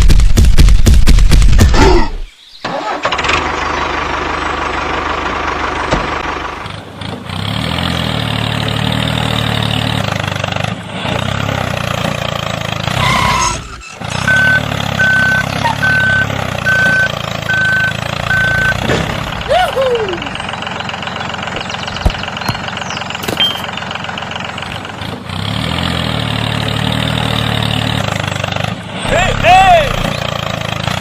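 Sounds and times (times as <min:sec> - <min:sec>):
tractor engine running: 0:02.6 - 0:31.0
high single-tone beep: 0:14.3 - 0:18.8.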